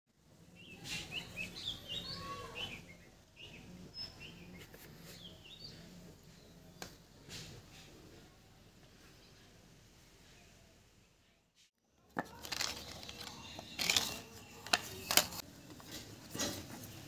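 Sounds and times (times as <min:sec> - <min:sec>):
small birds chirping: 0:00.4 - 0:07.4, 0:12.6 - 0:16.0.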